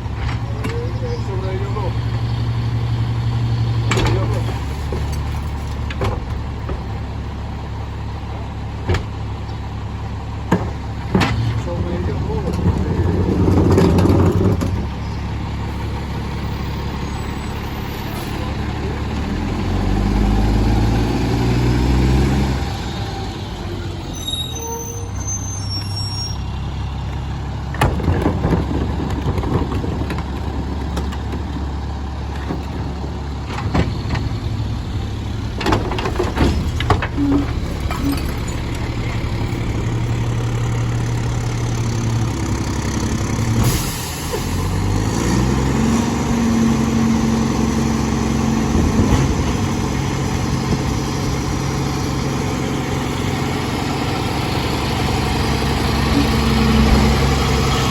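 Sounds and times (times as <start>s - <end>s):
diesel engine running: 0.0s - 57.9s
metal clanks and bangs: 32.4s - 40.1s.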